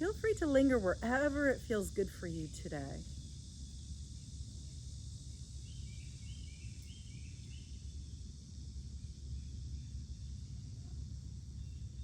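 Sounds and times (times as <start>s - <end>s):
crickets and insects droning: 0.0s - 12.0s
soft bird chirps: 5.6s - 7.9s.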